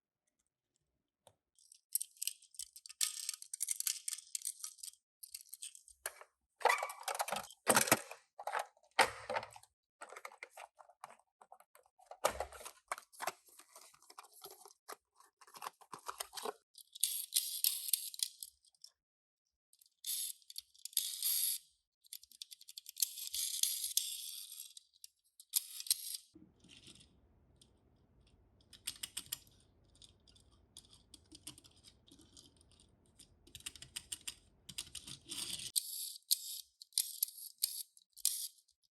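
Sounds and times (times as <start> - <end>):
toy cars clicking and tapping: 1.6 - 6.1, 15.7 - 18.9, 28.6 - 38.8
plastic and cardboard rustling: 6.1 - 16.6.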